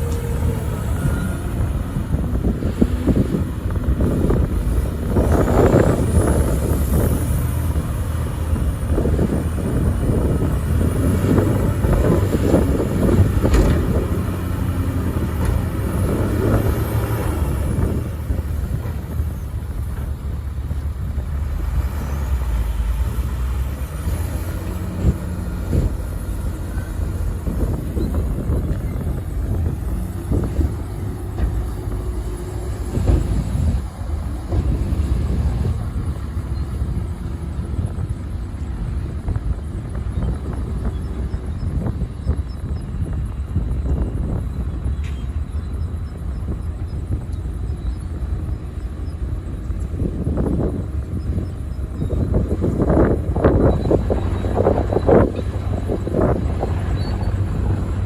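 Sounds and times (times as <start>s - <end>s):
heavy diesel machinery running: 0.0s - 58.0s
clattering and knocks: 11.2s - 20.9s.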